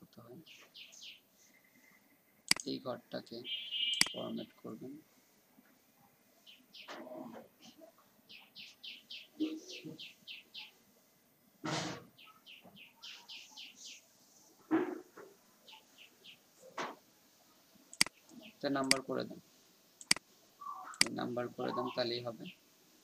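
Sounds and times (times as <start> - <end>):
bird chirping: 0.4 - 4.8, 6.4 - 10.9, 12.1 - 14.2, 15.6 - 16.7, 17.9 - 19.0, 20.0 - 22.6.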